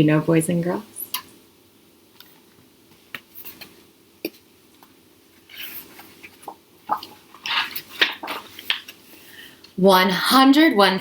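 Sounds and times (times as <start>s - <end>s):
soft rustling hisses: 2.0s - 9.7s.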